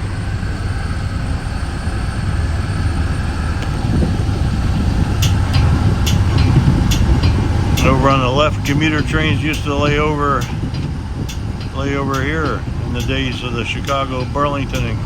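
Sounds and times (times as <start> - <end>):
train rumbling on rails: 0.0 - 15.0
sharp clicks: 5.1 - 15.0.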